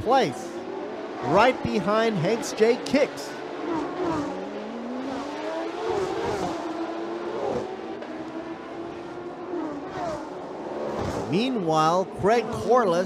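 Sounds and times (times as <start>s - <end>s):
race car engines running hard: 0.0s - 13.0s.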